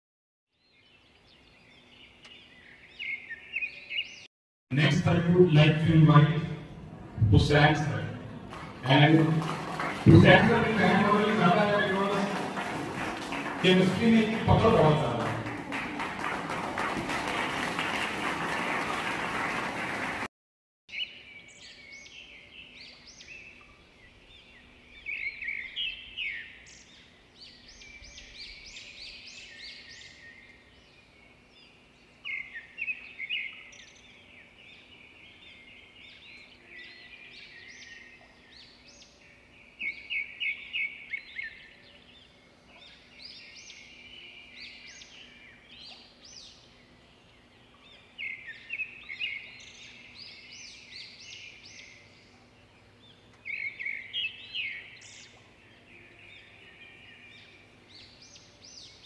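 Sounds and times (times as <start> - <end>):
birds chirping and twittering: 0.5 - 16.3, 20.9 - 59.0
faint steady hum: 21.1 - 59.0.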